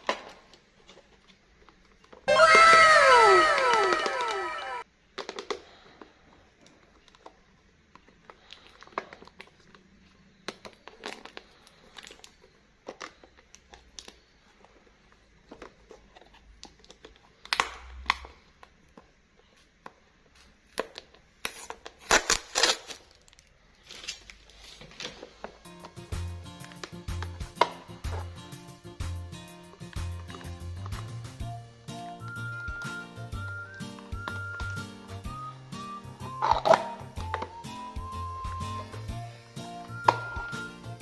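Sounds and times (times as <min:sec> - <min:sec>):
plastic packaging crinkling: 0:06.7 - 0:18.5, 0:20.4 - 0:28.4
packaging tearing: 0:10.6 - 0:14.2, 0:20.5 - 0:25.1.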